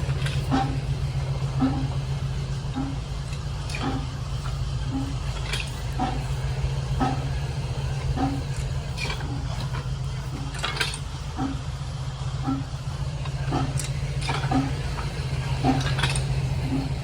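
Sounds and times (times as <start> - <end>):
old engine knocking slowly: 0.0 - 17.0
steady low drone: 0.0 - 17.0.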